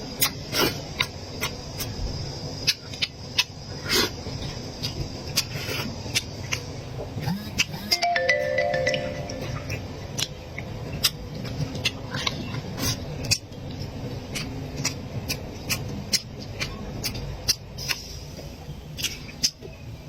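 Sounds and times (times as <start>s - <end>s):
chewing and mouth noises: 2.6s - 7.9s, 9.6s - 18.2s.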